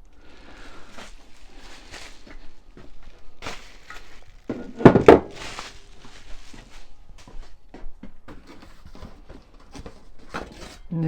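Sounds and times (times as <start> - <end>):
parts rustling and clattering: 0.0 - 10.9
heavy knocks on workbench: 4.5 - 5.4.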